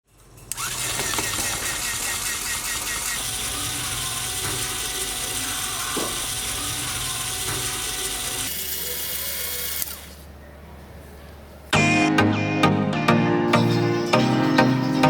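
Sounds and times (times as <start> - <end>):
toy mixer motor whirring: 0.5 - 10.2.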